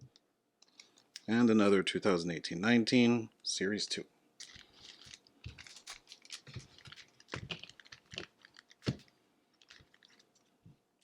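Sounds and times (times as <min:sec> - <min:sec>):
card pack wrapper crinkling: 0:04.4 - 0:10.5.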